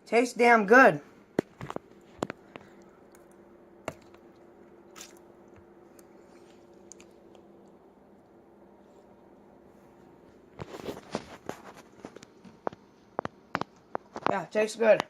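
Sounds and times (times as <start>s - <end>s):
faint steady hum: 0.0s - 15.0s
person chewing noodles: 1.8s - 9.7s.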